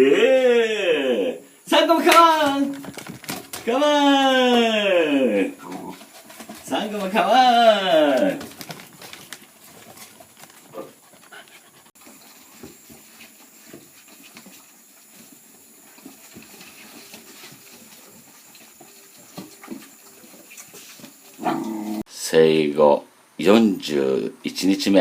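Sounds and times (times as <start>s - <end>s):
puppies making soft noises: 8.4s - 22.1s.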